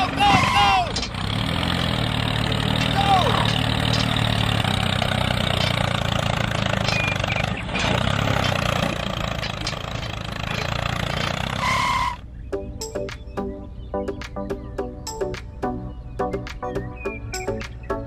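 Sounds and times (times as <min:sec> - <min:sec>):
small tractor engine idling: 0:00.0 - 0:12.0.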